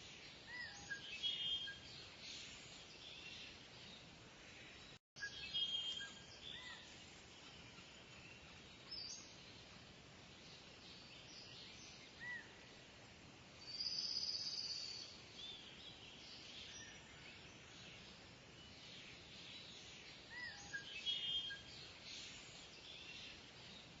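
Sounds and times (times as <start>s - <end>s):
birds chirping and whistling: 0.5s - 3.4s.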